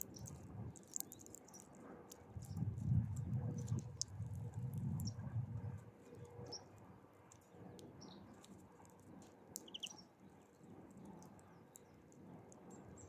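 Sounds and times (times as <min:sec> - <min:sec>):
faint clicks: 0:00.0 - 0:05.2, 0:07.3 - 0:10.0
high bird chirps: 0:09.6 - 0:10.0.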